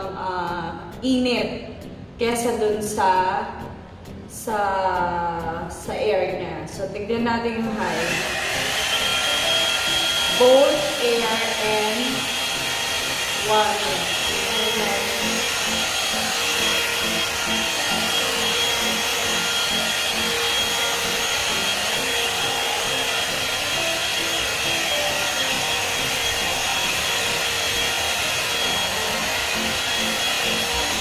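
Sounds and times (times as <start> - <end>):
hair dryer brush blowing air: 7.7 - 31.0.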